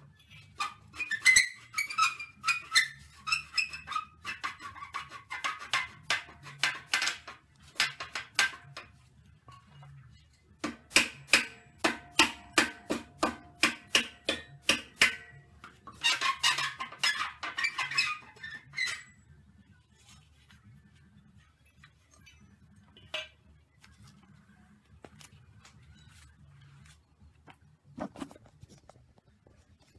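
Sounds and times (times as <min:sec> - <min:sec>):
mallet striking wood block: 0:10.6 - 0:15.3.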